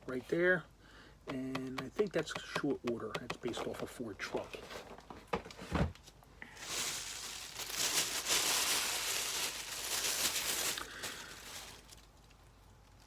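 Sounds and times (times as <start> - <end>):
packaging rustling and crinkling: 4.5 - 13.0.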